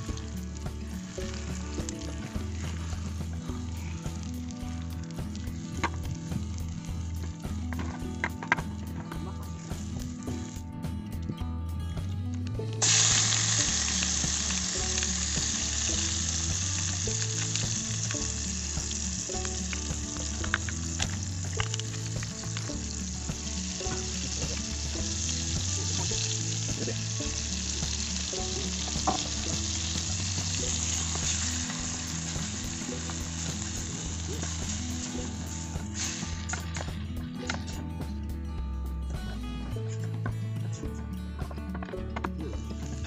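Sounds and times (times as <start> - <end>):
spices sizzling in hot oil: 0.0 - 10.9, 12.8 - 37.9.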